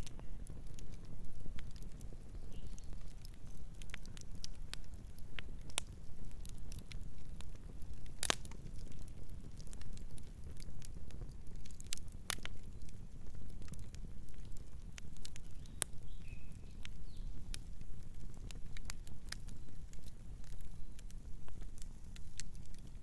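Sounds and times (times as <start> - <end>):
wood fire crackling: 0.0 - 23.0
faint bird chirp: 2.4 - 3.0, 15.5 - 17.4.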